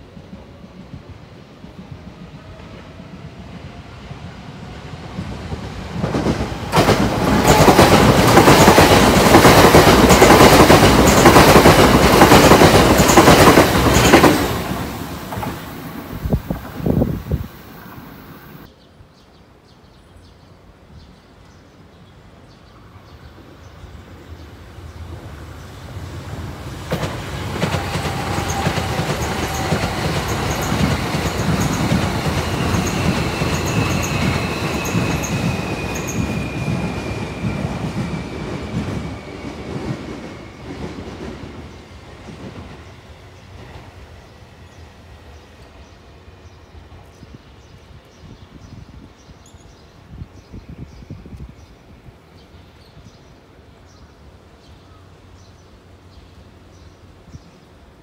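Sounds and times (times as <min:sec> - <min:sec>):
train wheels rumbling and clacking: 0:03.0 - 0:18.7, 0:25.1 - 0:44.8.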